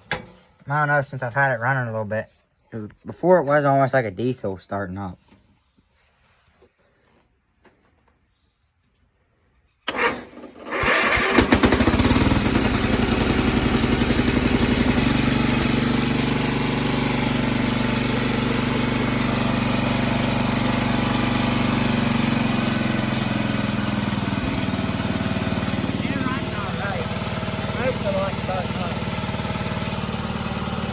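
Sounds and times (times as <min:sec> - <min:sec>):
small engine cranking and running: 0:09.9 - 0:30.9.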